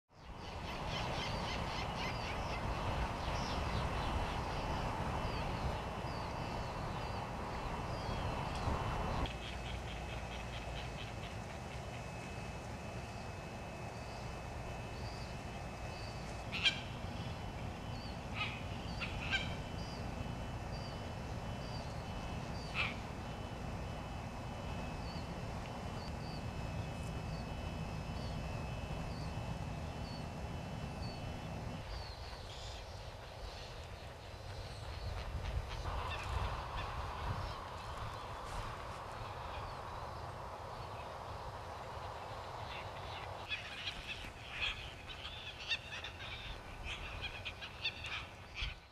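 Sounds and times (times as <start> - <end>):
distant birds chirping: 0.1 - 48.9
sharp bird calls: 0.2 - 12.3, 14.0 - 24.0, 42.6 - 48.9
steady background hiss: 0.2 - 48.9.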